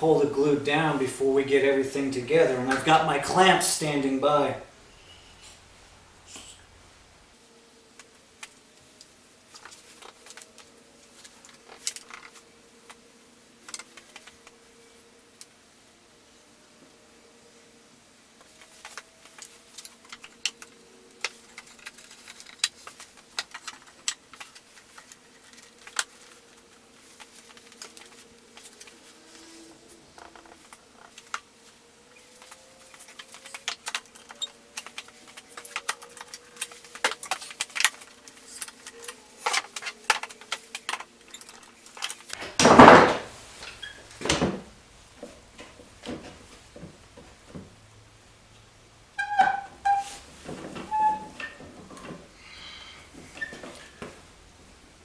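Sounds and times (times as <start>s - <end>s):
wood and metal clicks and knocks: 18.4s - 29.0s, 32.2s - 43.3s.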